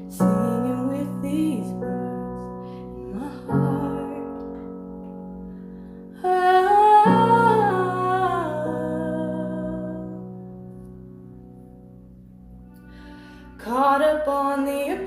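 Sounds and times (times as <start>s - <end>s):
person singing wordless ahh: 0.0s - 4.5s, 6.2s - 10.2s
sustained piano chords: 0.0s - 15.0s.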